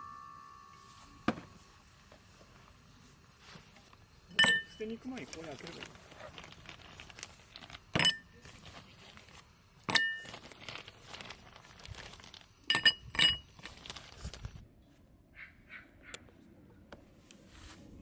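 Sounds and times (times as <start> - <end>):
glassware clinking: 4.3 - 5.0, 8.0 - 8.4, 9.9 - 10.4, 12.7 - 13.5
soft rustling: 17.2 - 18.0.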